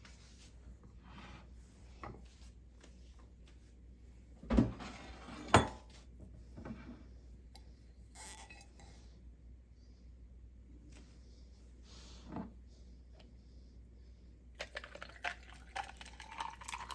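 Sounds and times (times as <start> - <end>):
dishware clinking: 5.4 - 5.8.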